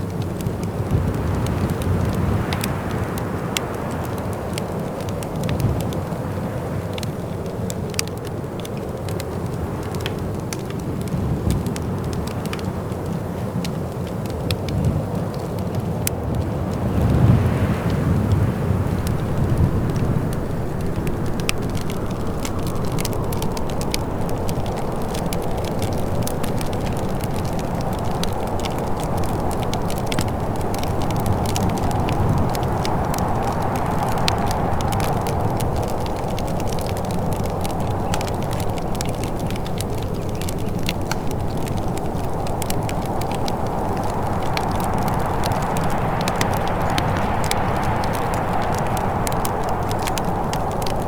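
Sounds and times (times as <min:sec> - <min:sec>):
wood fire crackling: 0:00.0 - 0:51.0.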